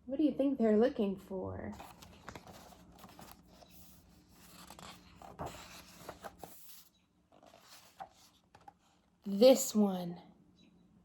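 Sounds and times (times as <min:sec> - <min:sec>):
paper pages rustling: 0:01.7 - 0:09.0.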